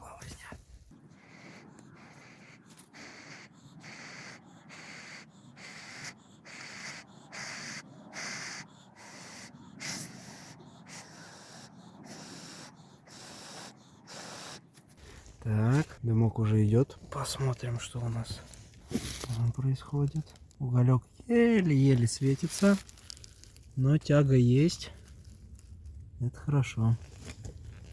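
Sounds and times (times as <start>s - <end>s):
person blowing short puffs: 9.8s - 15.3s.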